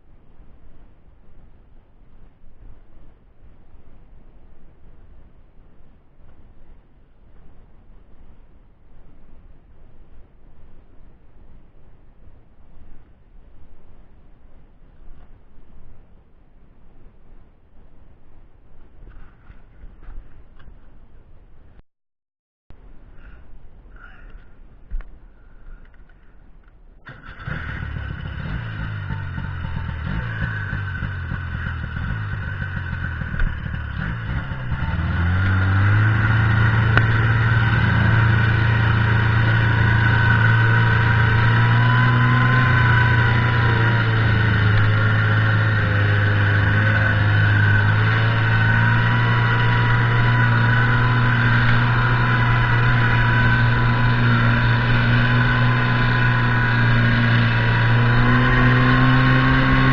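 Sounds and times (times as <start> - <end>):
snowmobile engine running: 27.1 - 59.9.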